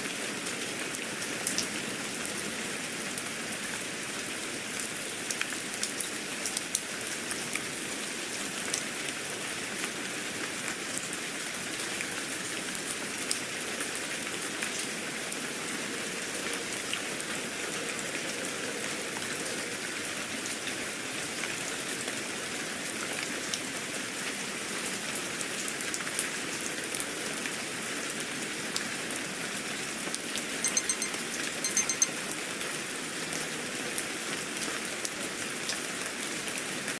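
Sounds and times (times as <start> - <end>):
steady rain falling: 0.0 - 30.4, 32.3 - 36.9
short high beeps: 30.6 - 32.1.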